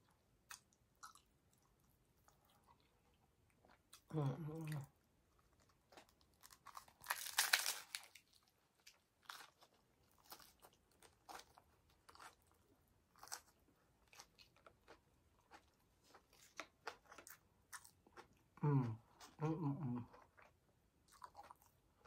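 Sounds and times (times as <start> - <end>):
crunchy chewing: 5.4 - 18.4, 20.1 - 21.8
taco shell crunching: 5.5 - 18.3.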